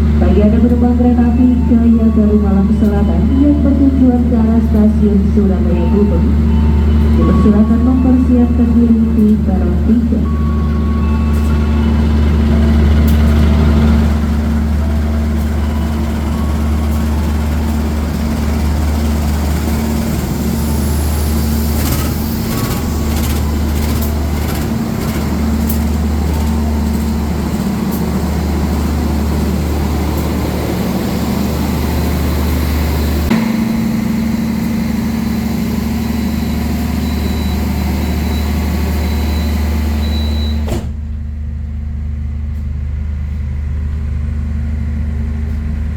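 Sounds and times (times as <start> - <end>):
train diesel engine idling: 0.0 - 45.9.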